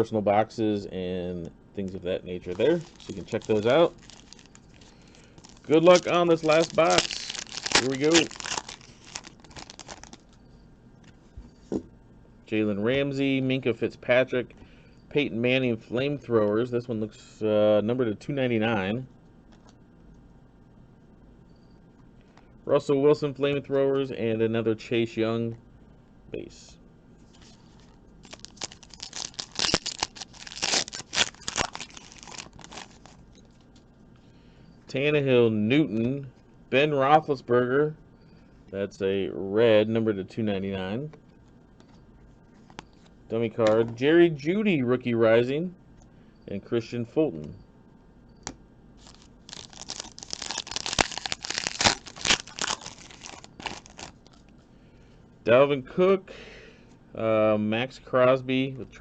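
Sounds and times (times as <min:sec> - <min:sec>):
wrapper tearing and crinkling: 0:02.4 - 0:10.4, 0:27.4 - 0:33.2, 0:49.0 - 0:54.4.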